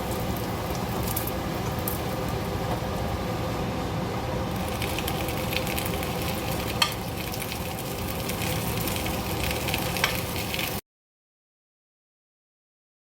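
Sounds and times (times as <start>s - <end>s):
pancake sizzling in oil: 0.0s - 3.6s, 4.4s - 10.8s.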